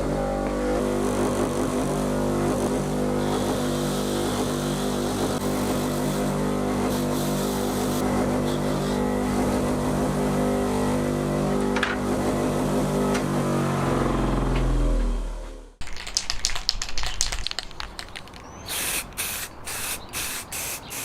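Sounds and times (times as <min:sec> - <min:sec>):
car engine running: 0:00.0 - 0:15.8.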